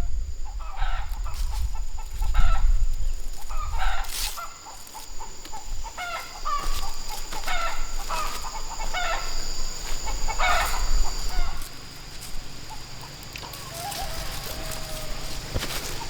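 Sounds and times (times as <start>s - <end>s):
chickens clucking: 3.4s - 16.0s.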